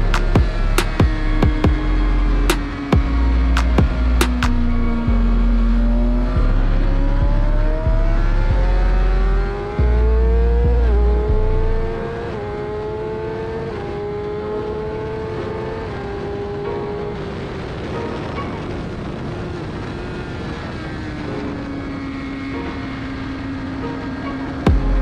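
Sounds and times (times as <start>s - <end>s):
motorcycle engine accelerating: 0.0s - 25.0s
wind rumble on microphone: 13.5s - 23.6s.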